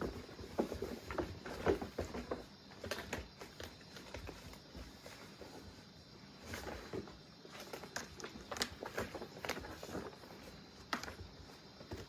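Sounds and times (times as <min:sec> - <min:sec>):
cats scampering on hard floor: 0:00.0 - 0:05.8, 0:06.4 - 0:12.0.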